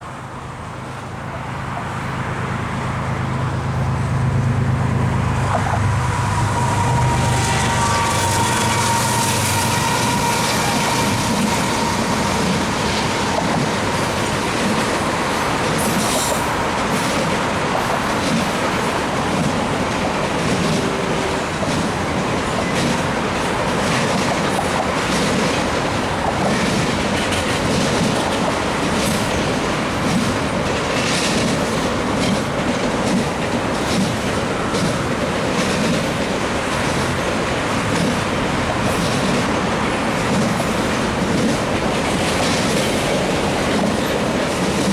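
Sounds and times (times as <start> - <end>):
freight train rumbling past: 0.0 - 44.9
wheels clattering over rail joints: 5.5 - 44.9
wheel squeal: 5.6 - 13.4.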